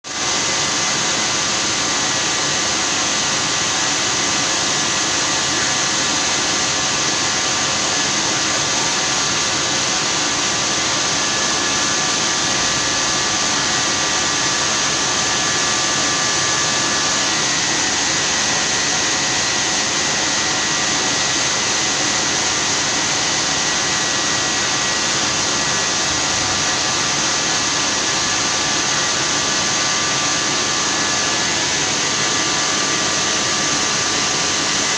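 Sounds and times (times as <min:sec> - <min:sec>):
lathe whirring: 0:00.3 - 0:34.9.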